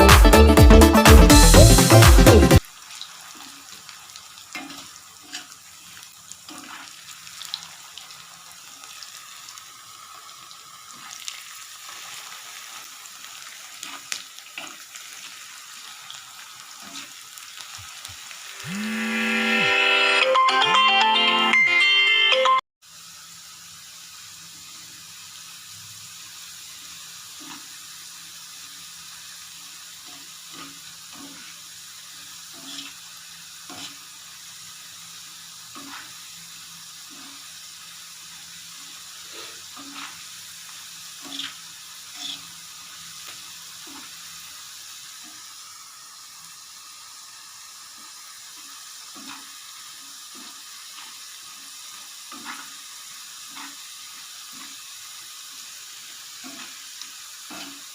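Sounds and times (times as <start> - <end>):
hot oil sizzling: 0.9 - 20.2, 22.8 - 57.9
oil crackles and pops: 2.6 - 18.6, 39.7 - 57.9.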